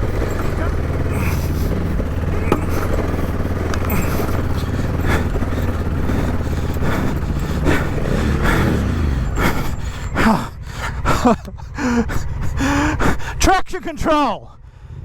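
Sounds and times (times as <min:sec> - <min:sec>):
motorcycle engine under load: 0:00.0 - 0:15.0
rider groaning and gasping: 0:00.0 - 0:15.0.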